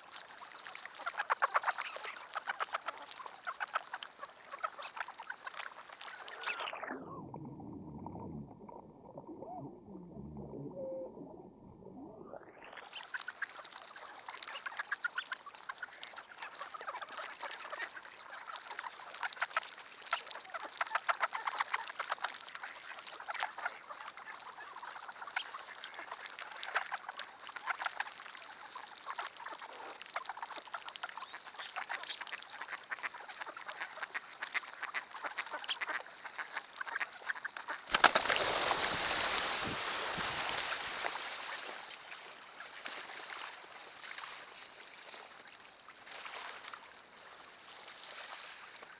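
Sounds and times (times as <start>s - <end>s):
ducks quacking: 0.0s - 6.9s, 12.5s - 43.5s.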